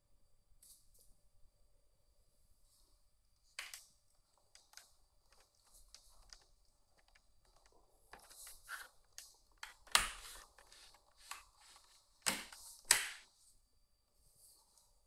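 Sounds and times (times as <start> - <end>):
sharp click: 12.2 - 13.2.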